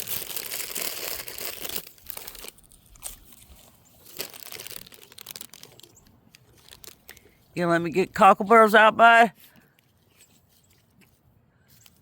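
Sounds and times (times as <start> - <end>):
sharp crackles: 0.0 - 7.4
crinkly rustling near microphone: 0.0 - 7.6.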